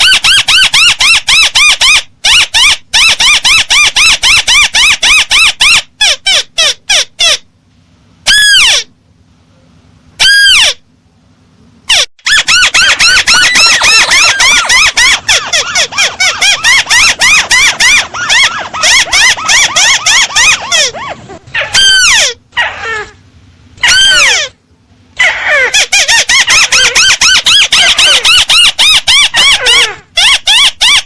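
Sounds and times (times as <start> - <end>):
crake bird calls: 11.9 - 23.1.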